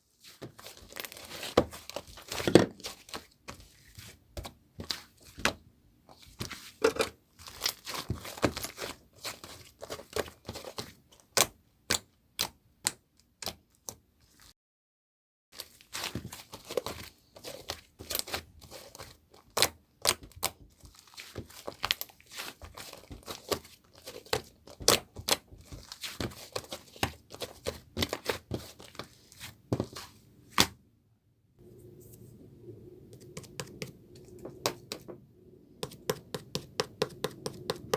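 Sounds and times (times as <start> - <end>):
crinkly paper rustling: 0.0 - 4.2, 6.1 - 6.8, 7.4 - 11.0, 15.6 - 30.2.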